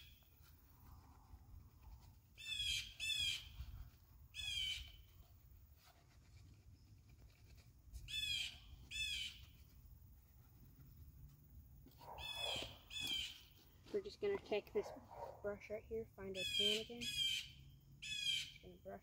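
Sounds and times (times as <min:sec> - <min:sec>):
bird calling: 0:12.0 - 0:13.6, 0:16.3 - 0:18.8.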